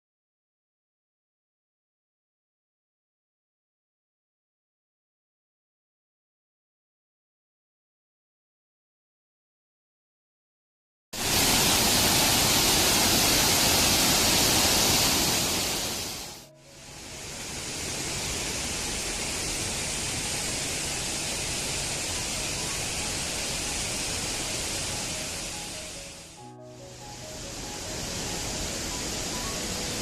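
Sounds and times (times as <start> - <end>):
waterfall rushing water: 11.2 - 30.0.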